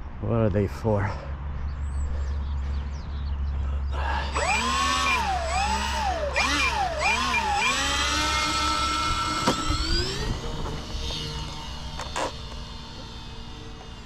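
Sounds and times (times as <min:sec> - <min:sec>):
electric motors whining: 0:03.9 - 0:14.0.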